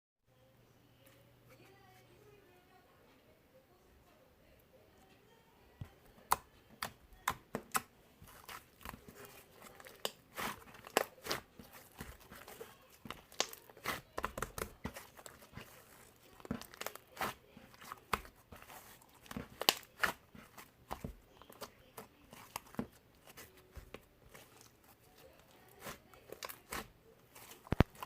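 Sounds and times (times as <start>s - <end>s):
crinkling and crackling: 7.5s - 28.0s.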